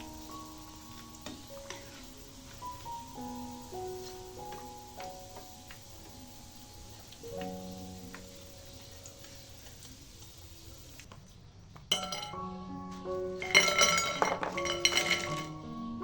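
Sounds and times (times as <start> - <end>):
light background music: 0.0 - 10.6, 11.9 - 16.0
utensils clinking against dishes: 11.9 - 12.5, 13.4 - 15.6.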